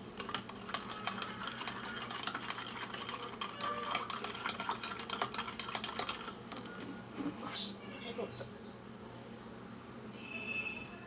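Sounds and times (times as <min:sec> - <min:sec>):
utensil beating liquid in container: 0:00.0 - 0:06.4.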